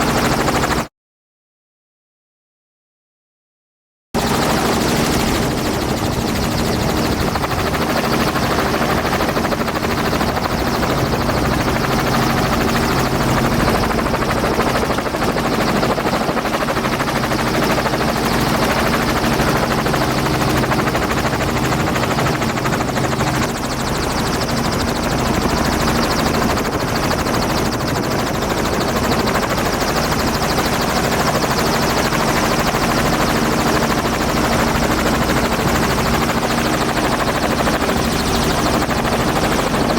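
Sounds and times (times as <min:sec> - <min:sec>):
wind rushing on camera: 0:04.2 - 0:39.9.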